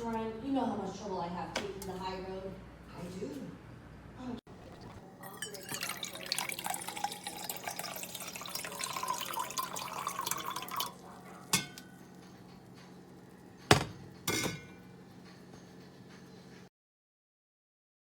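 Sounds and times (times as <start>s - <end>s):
liquid pouring into glass: 4.5s - 12.0s.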